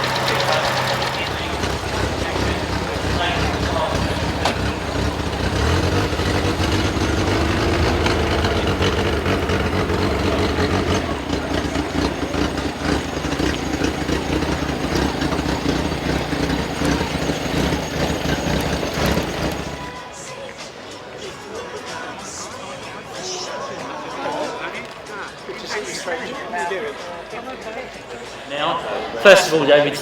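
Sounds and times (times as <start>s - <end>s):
car engine idling: 0.0s - 19.9s.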